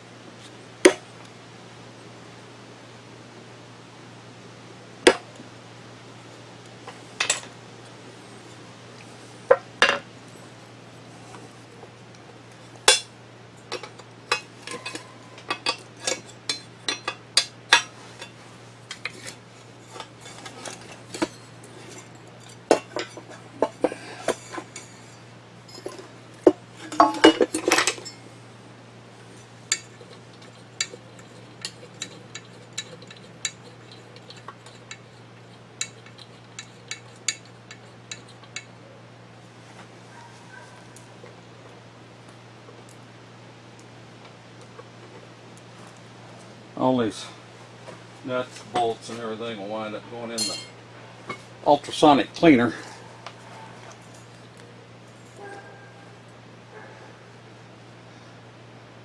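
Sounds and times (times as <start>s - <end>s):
steady low hum: 0.0s - 59.0s
metal parts clinking: 50.4s - 50.7s.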